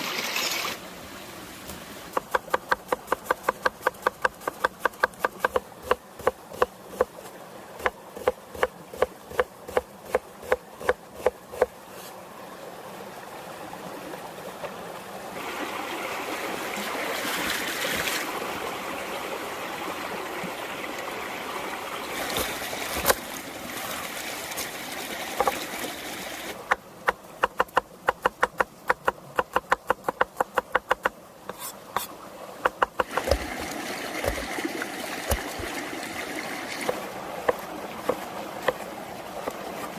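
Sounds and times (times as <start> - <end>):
knife chopping on wooden board: 2.2 - 7.1, 7.8 - 11.7, 27.4 - 32.1, 32.7 - 33.5.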